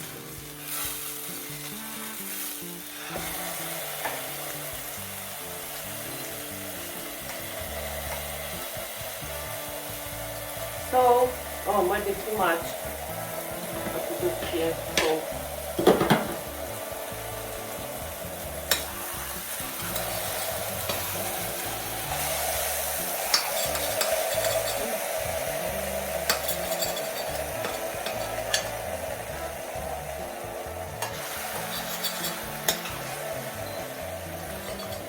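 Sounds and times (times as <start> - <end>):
food sizzling in a frying pan: 0.0 - 35.0
utensil clicking against pan: 18.7 - 19.0, 19.7 - 22.2, 23.1 - 25.0, 26.2 - 28.9.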